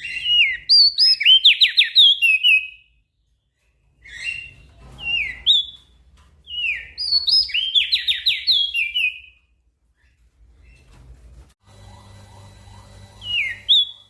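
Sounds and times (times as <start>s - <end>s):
songbird singing whistled notes: 6.5s - 9.4s.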